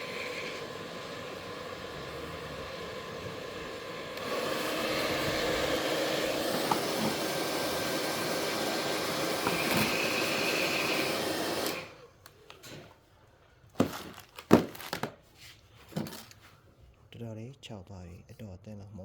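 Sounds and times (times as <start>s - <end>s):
electric air blower running: 0.0s - 12.1s.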